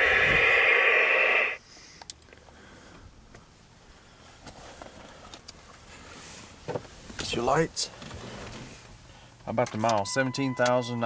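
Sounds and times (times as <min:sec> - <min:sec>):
loud buzzing tone: 0:00.0 - 0:01.6.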